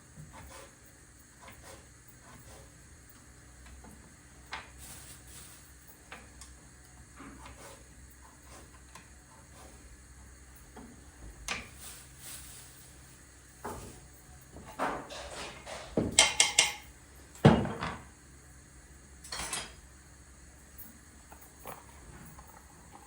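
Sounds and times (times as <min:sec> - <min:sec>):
hard objects knocking and clicking: 0:14.7 - 0:18.0.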